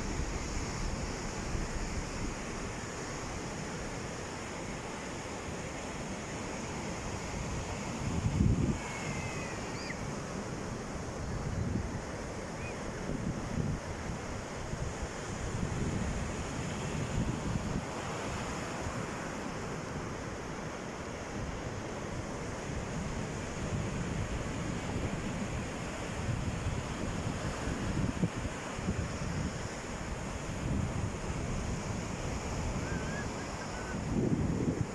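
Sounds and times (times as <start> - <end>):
sea waves washing ashore: 0.0 - 34.9
wind buffeting microphone: 23.6 - 34.9.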